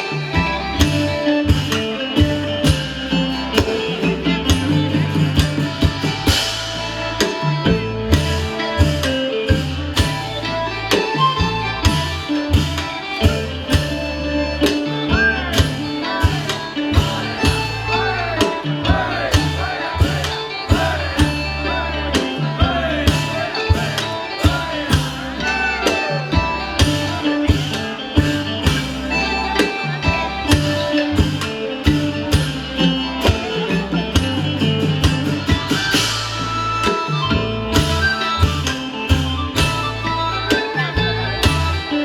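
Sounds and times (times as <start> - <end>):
folk ensemble playing: 0.0 - 42.0
steady drum beat: 0.0 - 42.0.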